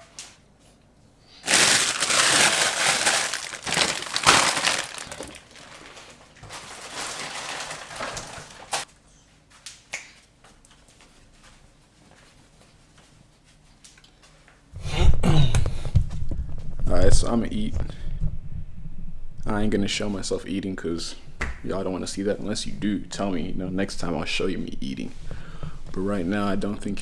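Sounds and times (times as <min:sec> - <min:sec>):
crunching and rustling: 0:01.4 - 0:08.9.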